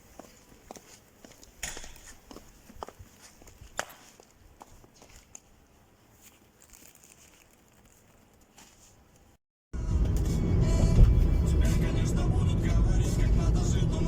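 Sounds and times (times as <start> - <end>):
faint footsteps: 0.0 - 9.3.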